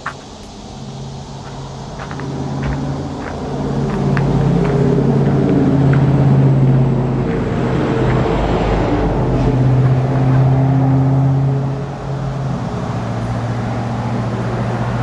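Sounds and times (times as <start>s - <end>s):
engine running with low hum: 0.0s - 15.0s
noisy rush: 0.0s - 15.0s.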